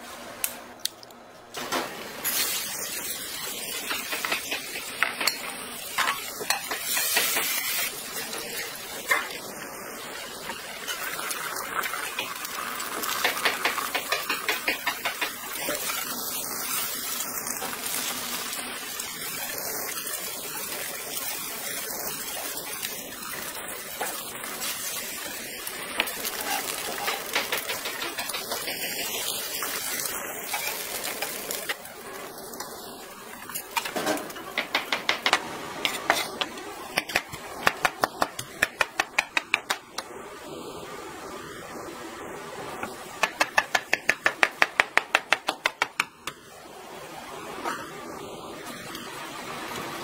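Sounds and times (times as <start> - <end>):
egg batter sizzling in pans: 1.6 - 40.0.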